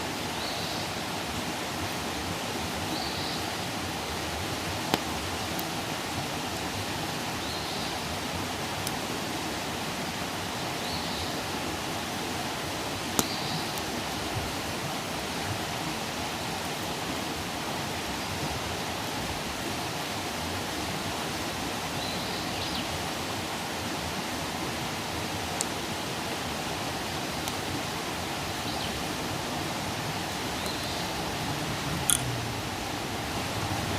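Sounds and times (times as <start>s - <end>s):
campfire hissing: 0.0s - 33.9s
campfire pops: 4.8s - 5.8s, 13.1s - 13.9s, 27.4s - 27.7s.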